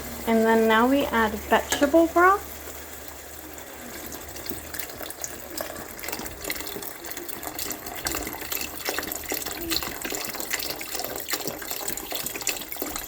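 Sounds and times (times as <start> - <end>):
broth pouring into a pot: 0.0 - 13.0.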